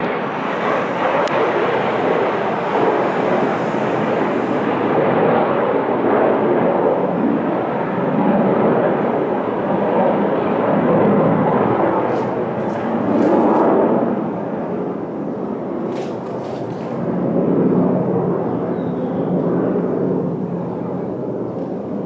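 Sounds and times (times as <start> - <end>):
fighter jet taking off: 0.0 - 7.8.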